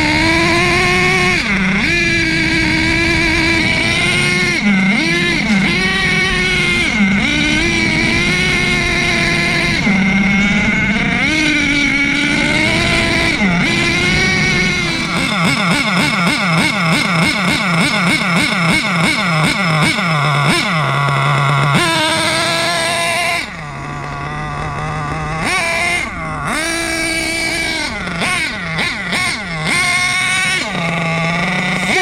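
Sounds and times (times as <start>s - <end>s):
model engine revving: 0.0s - 32.0s.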